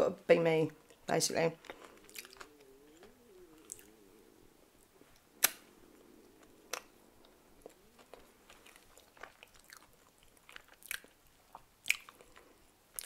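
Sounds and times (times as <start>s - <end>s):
person quietly chewing: 0.8s - 13.0s
sharp mouth clicks: 1.6s - 4.0s, 5.4s - 5.7s.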